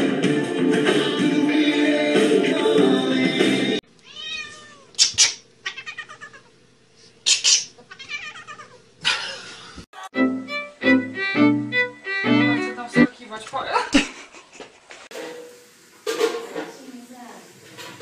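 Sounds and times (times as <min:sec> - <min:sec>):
cat meowing and yowling: 0:04.0 - 0:05.0, 0:05.6 - 0:06.5, 0:07.9 - 0:08.8.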